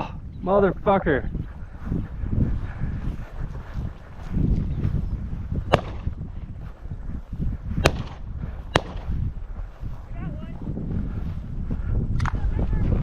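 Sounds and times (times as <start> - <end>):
wind rumble on microphone: 0.0 - 13.0
shotgun shots: 5.7 - 6.1, 7.8 - 9.1.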